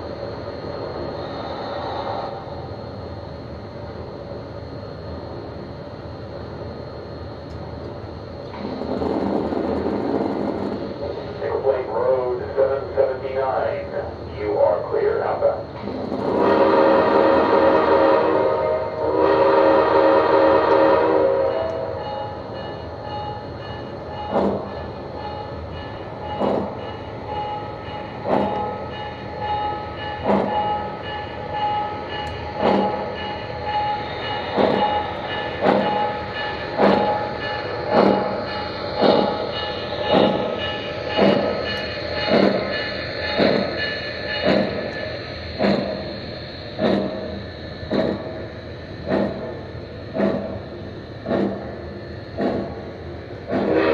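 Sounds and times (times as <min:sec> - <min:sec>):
train running with sharp knocks: 0:00.0 - 0:53.9
locomotive horn blast: 0:16.3 - 0:21.9, 0:53.7 - 0:53.9.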